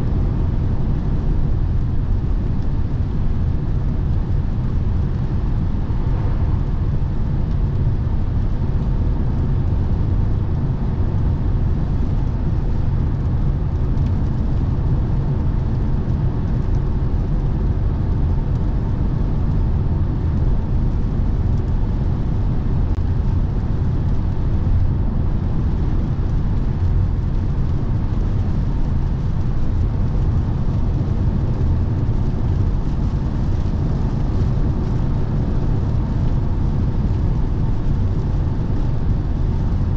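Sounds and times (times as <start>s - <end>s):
road and tyre rumble in car: 0.0s - 39.9s.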